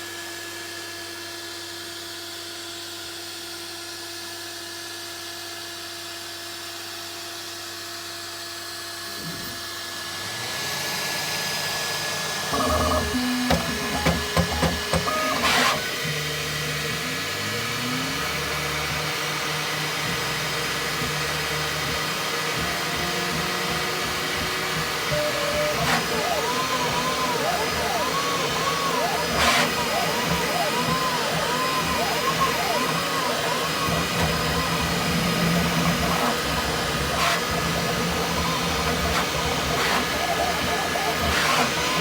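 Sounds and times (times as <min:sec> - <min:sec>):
stepper motors whining: 0:09.0 - 0:42.0.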